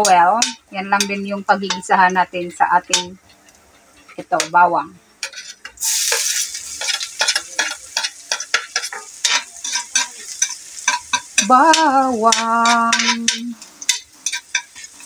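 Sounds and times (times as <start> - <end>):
metal spatula clinking and scraping: 0.0 - 2.0, 5.2 - 15.0
garlic sizzling in hot fat: 0.0 - 15.0.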